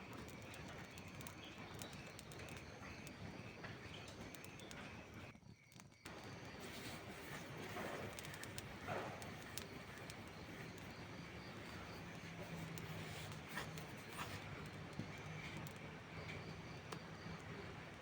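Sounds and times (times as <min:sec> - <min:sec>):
steady rain hiss: 0:06.1 - 0:18.0
wood fire crackling: 0:06.1 - 0:18.0.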